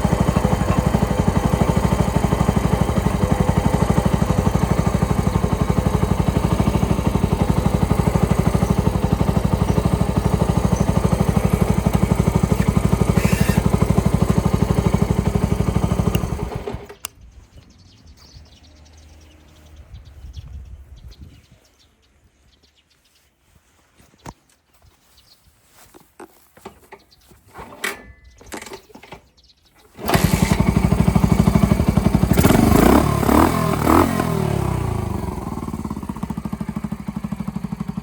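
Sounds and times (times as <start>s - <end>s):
engine idling: 0.0s - 17.1s, 30.0s - 38.0s
click: 16.1s - 16.3s, 16.9s - 17.2s.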